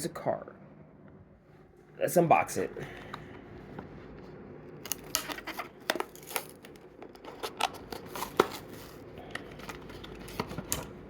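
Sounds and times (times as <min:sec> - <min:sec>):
card and plastic packaging crackling: 0:04.7 - 0:11.0.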